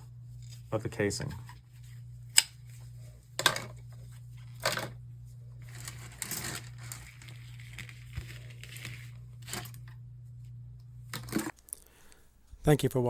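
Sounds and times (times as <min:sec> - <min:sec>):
steady low hum: 0:00.0 - 0:13.0
rustling and crinkling: 0:00.2 - 0:10.0.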